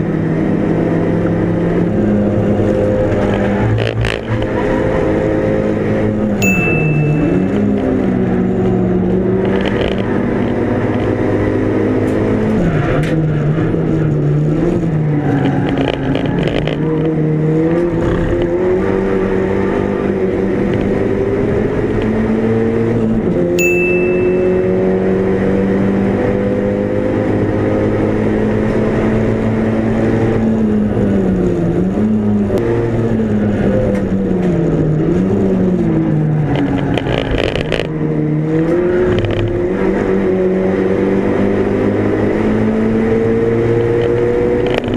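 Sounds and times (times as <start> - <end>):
race car engine revving: 7.0 - 23.6, 24.2 - 44.9.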